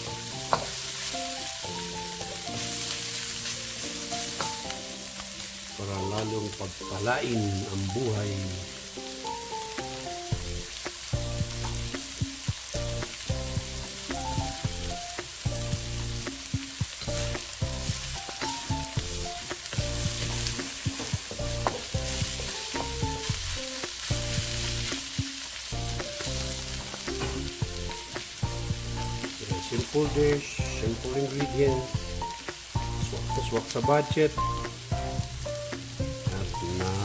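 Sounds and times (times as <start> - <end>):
food sizzling in a wok: 0.0 - 37.0
soft background music: 0.0 - 37.0
wooden spatula scraping a pan: 2.3 - 4.7, 17.1 - 25.5.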